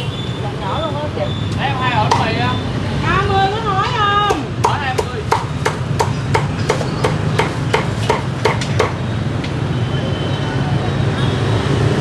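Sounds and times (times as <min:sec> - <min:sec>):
low street traffic rumble: 0:00.0 - 0:12.0
cleaver chopping on a block: 0:02.1 - 0:02.4, 0:04.3 - 0:09.0.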